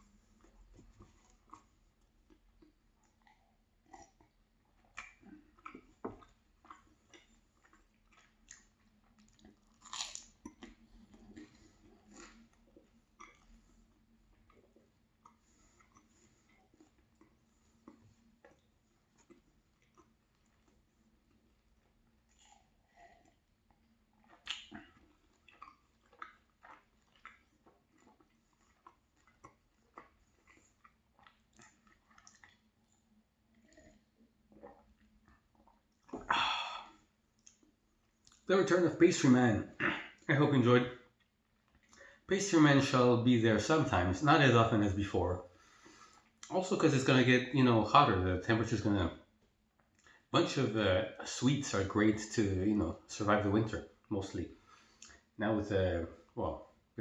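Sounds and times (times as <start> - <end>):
chewing crunchy pastry: 0.0 - 43.0, 49.2 - 51.4, 53.8 - 55.4
wet mouth clicks: 24.2 - 32.7, 55.0 - 55.3.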